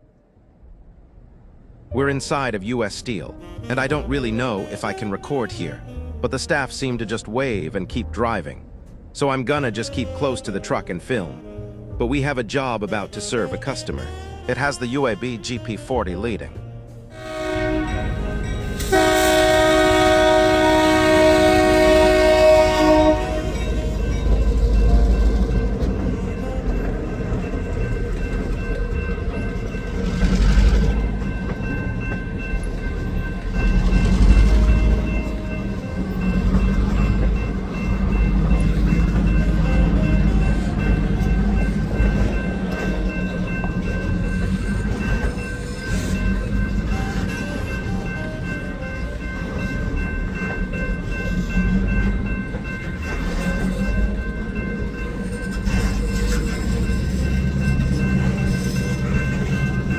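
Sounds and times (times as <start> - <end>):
diesel locomotive engine rumble: 16.5 - 59.9.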